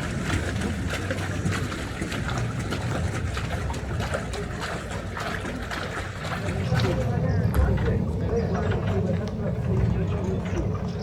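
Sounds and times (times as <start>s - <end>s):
boat cradle rumbling on rails: 0.0s - 11.0s
water trickling: 0.0s - 11.0s.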